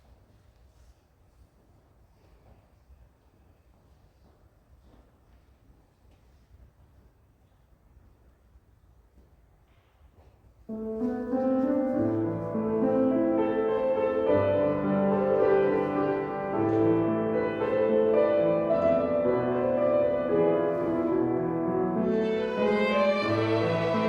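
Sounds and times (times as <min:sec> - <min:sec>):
piano accompaniment: 0:10.7 - 0:24.0
violin ensemble: 0:12.2 - 0:24.0.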